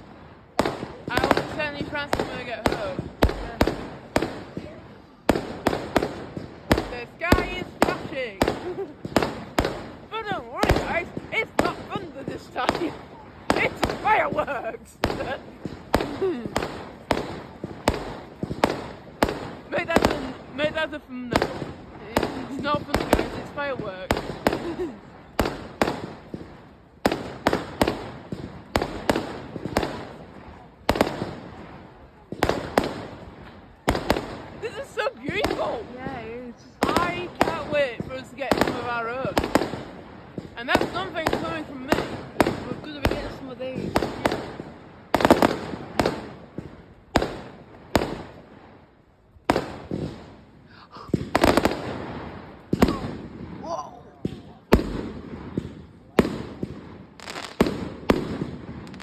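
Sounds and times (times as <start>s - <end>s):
fireworks bangs with rolling echo: 0.0s - 59.0s.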